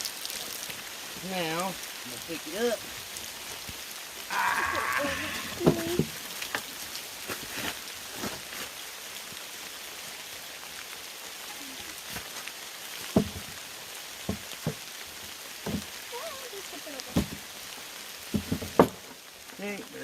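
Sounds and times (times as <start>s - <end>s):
steady rain hissing: 0.0s - 20.0s
camp gear knocking and clattering: 13.1s - 13.5s, 18.3s - 19.1s.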